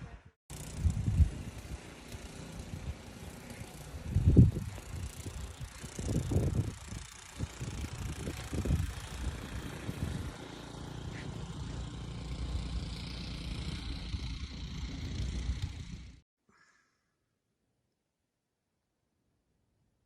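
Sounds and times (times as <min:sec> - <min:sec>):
steady rumbling noise: 0:00.5 - 0:10.4.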